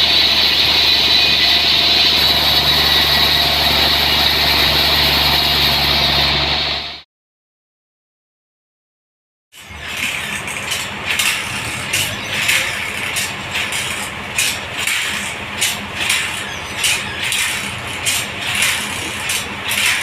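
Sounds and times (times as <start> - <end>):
sawmill engine hum: 0.0 - 7.0, 9.6 - 20.0
hissing rasp of saw: 9.6 - 20.0.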